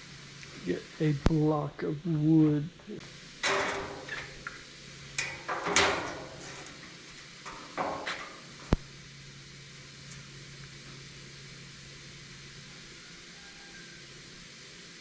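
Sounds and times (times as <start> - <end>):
low steady hum: 0.0 - 15.0
knocks and clatters of objects: 5.2 - 8.4.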